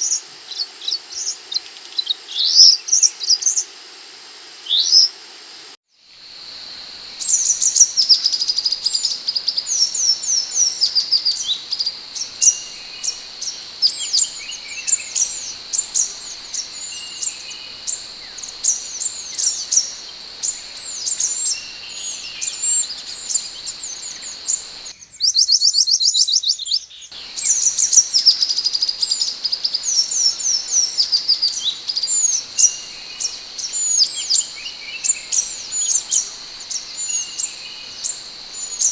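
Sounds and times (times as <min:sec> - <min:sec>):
bird high sweeping whistles: 0:06.8 - 0:24.9, 0:27.2 - 0:38.9.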